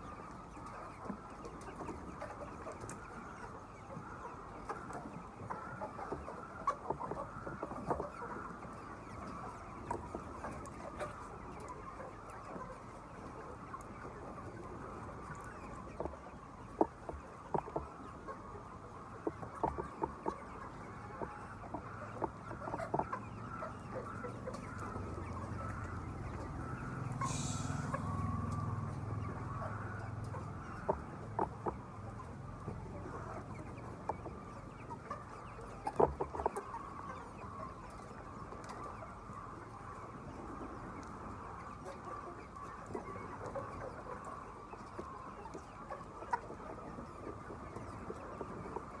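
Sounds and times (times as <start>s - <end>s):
chickens clucking: 0.0s - 49.0s
low rumble: 27.2s - 29.4s.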